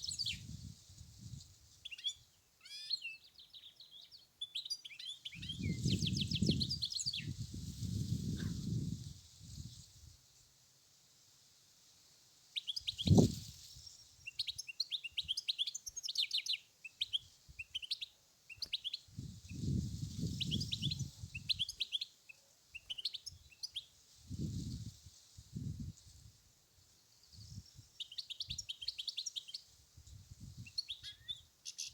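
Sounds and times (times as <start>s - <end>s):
finch twittering song: 30.6s - 31.9s.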